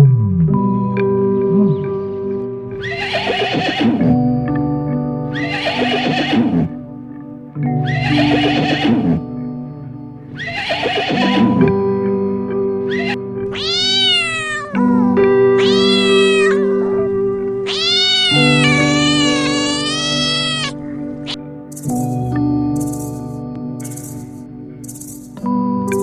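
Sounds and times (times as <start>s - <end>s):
background music with held notes: 0.0s - 26.0s
horse whinnying: 2.8s - 4.2s, 5.4s - 6.8s, 7.8s - 9.2s, 10.4s - 11.6s, 12.9s - 14.8s, 15.6s - 16.7s, 17.7s - 20.8s.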